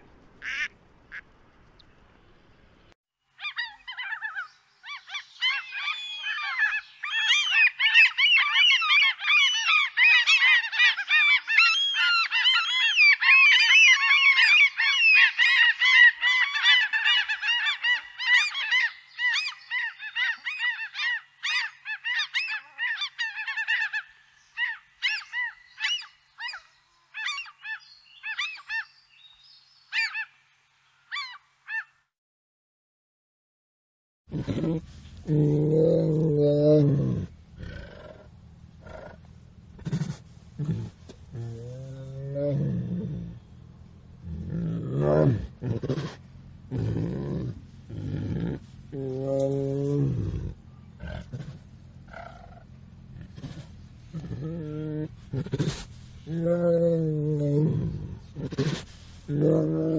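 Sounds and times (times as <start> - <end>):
flock of birds calling: 3.4 - 29.0.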